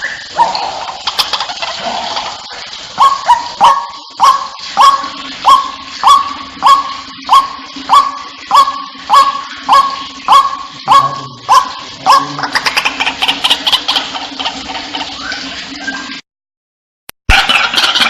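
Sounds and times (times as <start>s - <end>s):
waterhen calling: 0.0s - 16.2s, 17.3s - 18.0s.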